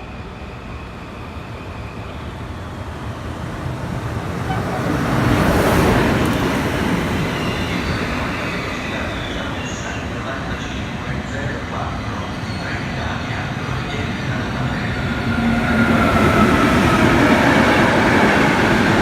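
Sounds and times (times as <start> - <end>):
train wheels on rails: 0.0 - 19.0.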